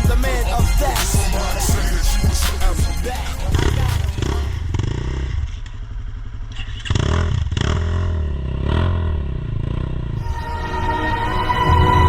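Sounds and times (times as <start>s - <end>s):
dirt bike engine revving: 0.0s - 6.0s.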